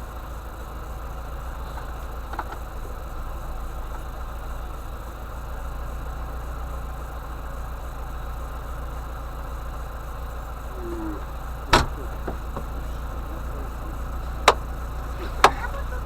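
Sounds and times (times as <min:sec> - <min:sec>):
van engine idling: 0:00.0 - 0:16.0
sharp knocks: 0:11.7 - 0:13.1.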